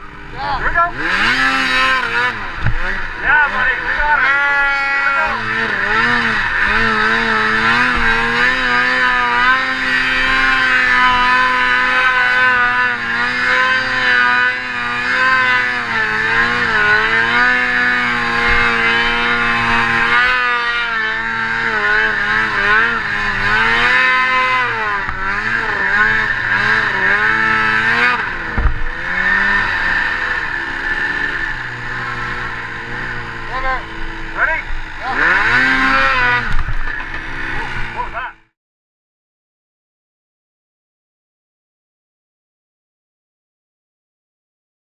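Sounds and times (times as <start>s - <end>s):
snowmobile engine revving: 0.0s - 38.6s.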